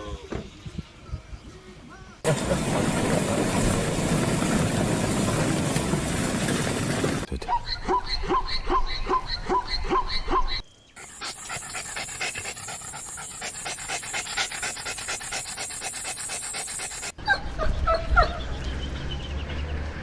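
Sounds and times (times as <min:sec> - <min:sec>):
dog panting: 0:11.0 - 0:17.2.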